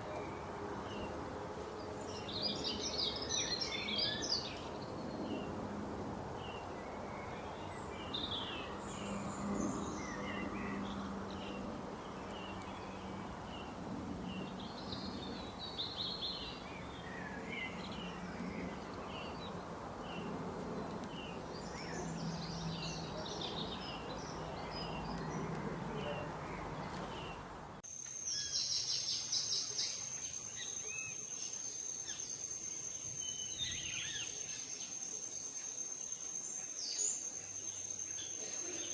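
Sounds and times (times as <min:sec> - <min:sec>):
small birds chirping: 0:01.8 - 0:05.6, 0:06.4 - 0:38.9
background hiss: 0:26.8 - 0:38.9.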